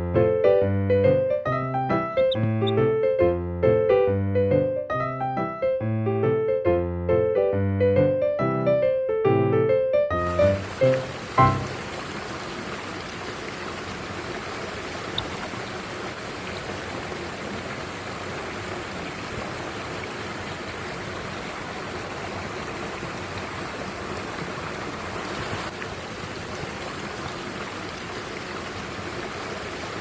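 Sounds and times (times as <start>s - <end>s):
stream rushing over rocks: 10.2s - 30.0s.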